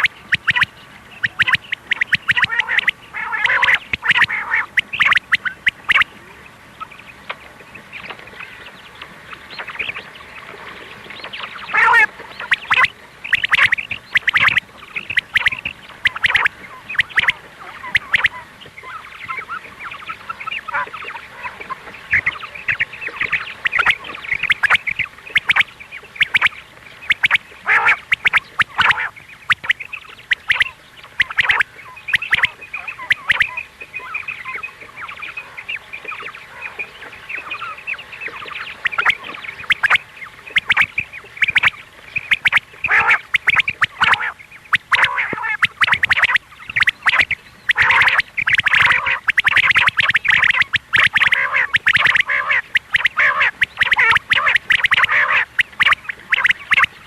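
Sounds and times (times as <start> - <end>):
sharp clicks: 0.0 - 2.9, 38.9 - 56.9
quail calling: 0.0 - 10.5, 11.2 - 57.0.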